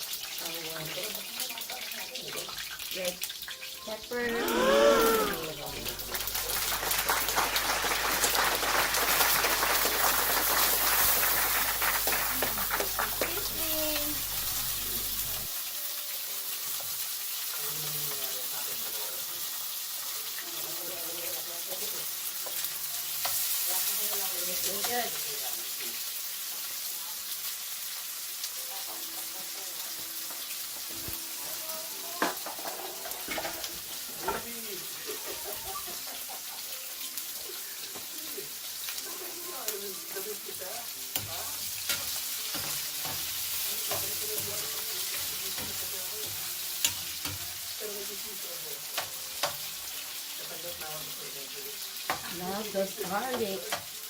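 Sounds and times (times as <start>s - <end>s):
food sizzling in a frying pan: 0.0s - 54.0s.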